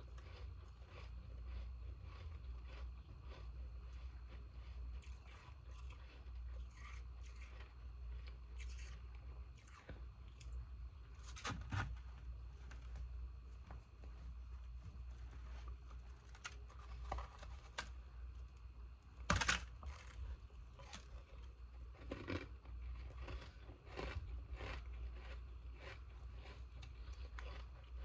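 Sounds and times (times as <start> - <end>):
ice crunching in mouth: 20.8 - 28.0.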